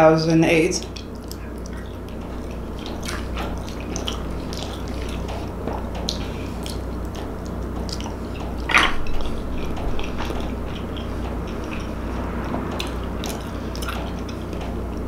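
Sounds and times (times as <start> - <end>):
steady low hum: 0.0 - 15.0
wet chewing and mouth clicks: 0.8 - 15.0.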